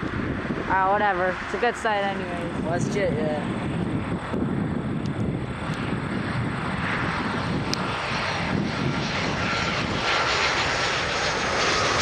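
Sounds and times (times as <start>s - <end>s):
jet airliner engines running: 0.0s - 12.0s
thin steady whine: 0.7s - 3.5s.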